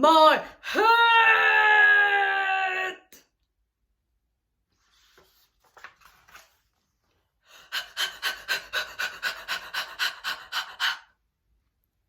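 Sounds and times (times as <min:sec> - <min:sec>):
woman panting: 0:07.4 - 0:11.2.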